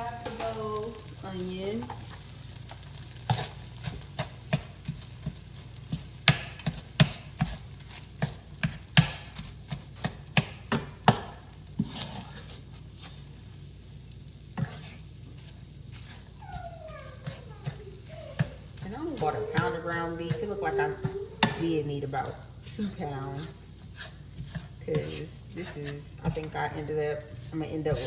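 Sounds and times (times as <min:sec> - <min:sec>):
food frying while stirred: 0:00.0 - 0:28.0
utensil knocking on frying pan: 0:05.9 - 0:07.6, 0:08.2 - 0:11.4.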